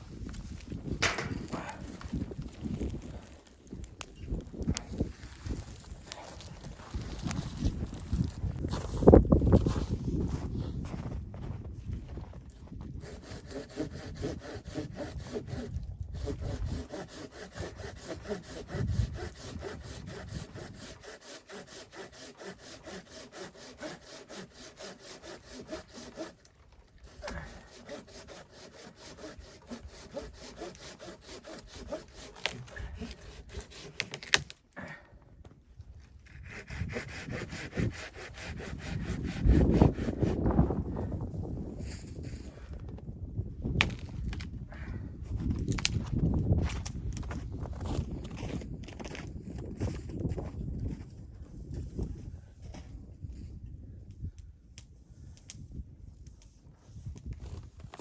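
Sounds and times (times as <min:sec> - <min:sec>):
wood knocking and rustling: 0:00.8 - 0:02.2
hand saw cutting wood: 0:13.0 - 0:34.6, 0:36.2 - 0:40.4.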